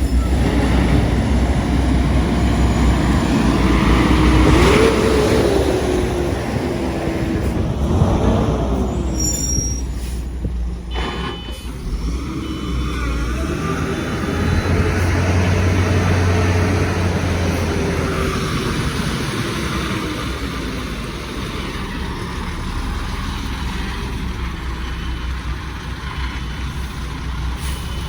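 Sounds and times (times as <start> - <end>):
low traffic rumble: 0.0 - 28.0
truck engine passing: 0.0 - 28.0.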